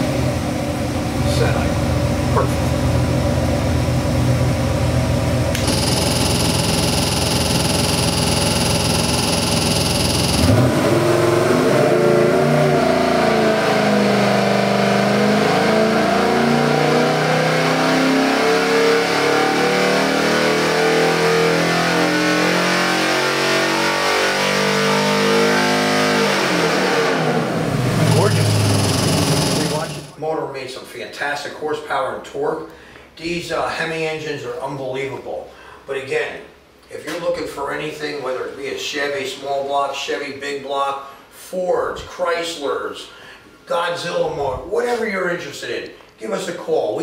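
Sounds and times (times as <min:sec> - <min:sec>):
engine revving on dyno: 0:05.5 - 0:30.2.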